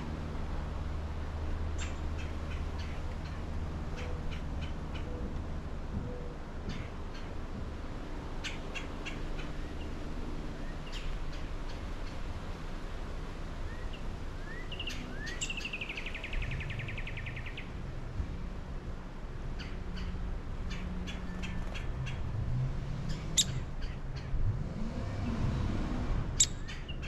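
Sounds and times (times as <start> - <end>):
small birds chirping: 1.7 - 5.3, 10.6 - 12.3, 13.7 - 17.8, 23.0 - 24.4, 26.4 - 27.0.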